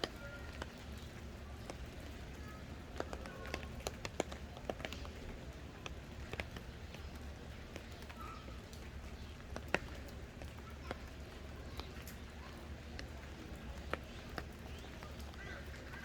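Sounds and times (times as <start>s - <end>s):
sharp clicks and taps: 2.7s - 8.1s.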